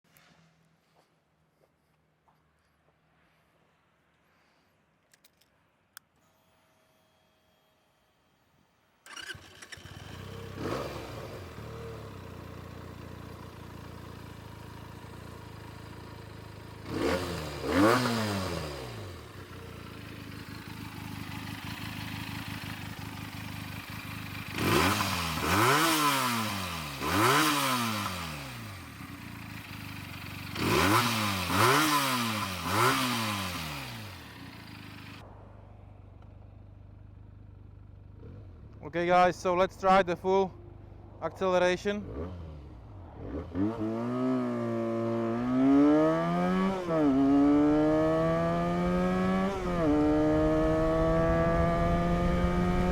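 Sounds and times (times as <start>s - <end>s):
motorcycle engine starting: 9.0s - 52.9s
motorcycle engine revving: 9.1s - 35.2s, 37.4s - 52.9s
motorcycle engine idling: 11.2s - 17.7s, 18.9s - 25.8s, 26.4s - 39.6s.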